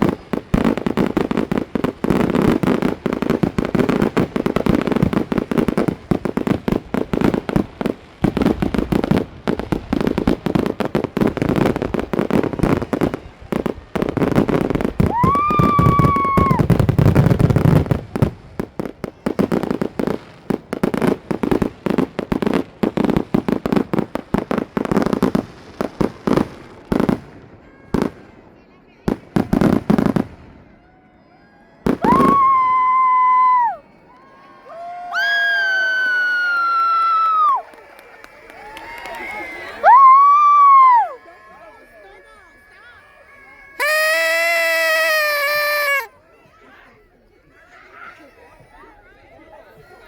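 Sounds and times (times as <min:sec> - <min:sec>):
firework whistling: 0:00.0 - 0:18.4, 0:31.8 - 0:34.0, 0:35.2 - 0:46.1
fireworks bangs and crackling: 0:00.0 - 0:31.0, 0:31.8 - 0:42.7, 0:43.3 - 0:46.1.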